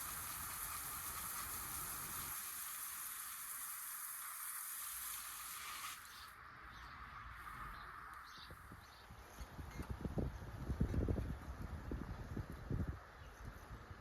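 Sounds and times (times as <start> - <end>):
falling rain hiss: 0.0 - 6.3.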